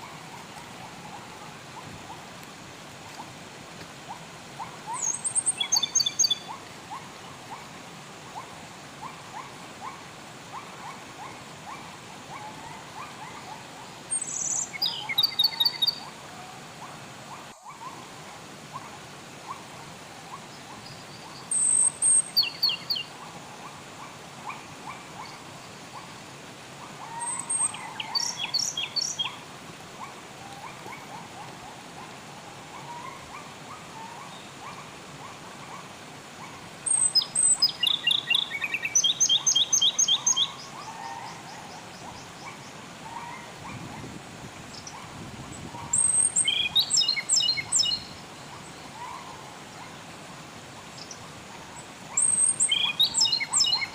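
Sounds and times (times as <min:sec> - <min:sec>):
flowing water hiss: 0:00.0 - 0:53.9
songbird singing rapid notes: 0:04.9 - 0:06.6, 0:14.1 - 0:16.1, 0:20.8 - 0:23.1, 0:27.1 - 0:29.4, 0:36.8 - 0:40.6, 0:44.7 - 0:48.9, 0:52.1 - 0:53.9
faint bird chatter: 0:27.0 - 0:29.4.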